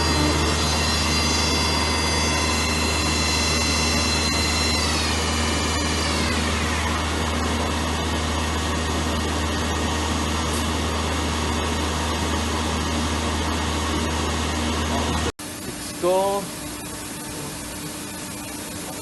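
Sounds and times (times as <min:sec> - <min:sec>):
lathe machine humming: 0:00.0 - 0:19.0.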